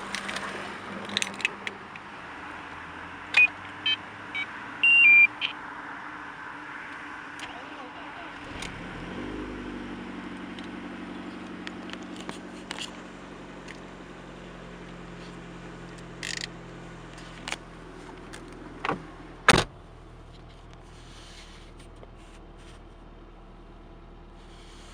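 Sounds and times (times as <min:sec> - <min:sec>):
clicks and rattles: 0:00.0 - 0:02.1, 0:10.5 - 0:13.0, 0:15.9 - 0:16.6
car engine idling: 0:00.0 - 0:24.9.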